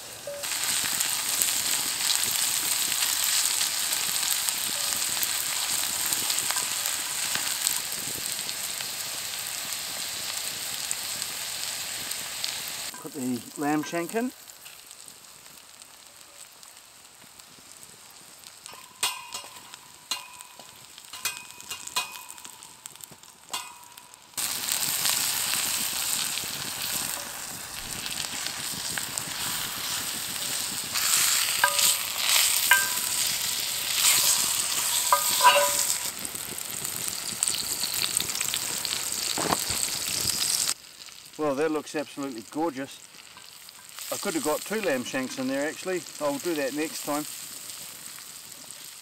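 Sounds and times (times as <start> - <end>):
meat sizzling in hot oil: 0.0 - 49.0
vegetables sizzling in oil: 0.0 - 49.0
utensil clinking on pan: 18.7 - 22.7, 23.5 - 24.2, 31.4 - 36.1.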